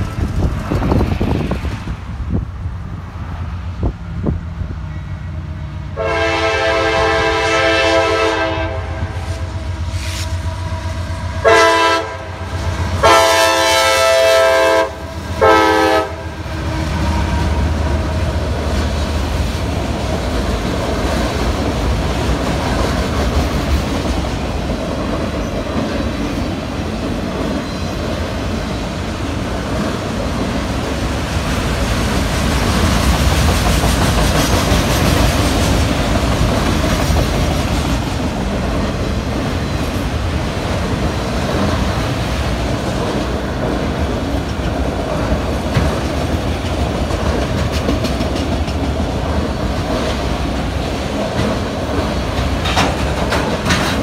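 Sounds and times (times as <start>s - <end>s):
train wheels rumbling on rail: 0.0s - 54.0s
locomotive air horn blasts: 5.9s - 18.2s.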